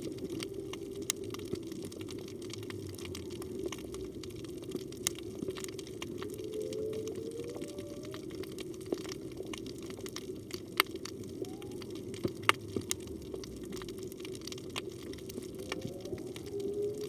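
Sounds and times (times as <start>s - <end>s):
whale call: 0.0s - 1.9s, 5.5s - 9.3s, 11.0s - 13.2s, 15.1s - 17.0s
sharp underwater clicks: 0.0s - 17.0s
underwater water rush: 0.0s - 17.0s.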